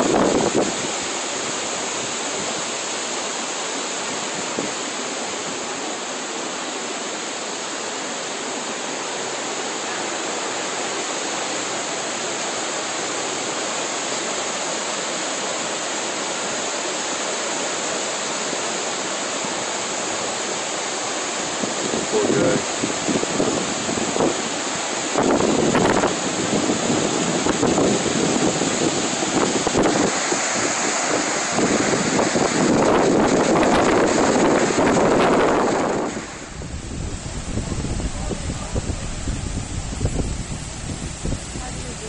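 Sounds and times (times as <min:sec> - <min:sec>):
floodwater rushing: 0:00.0 - 0:42.0.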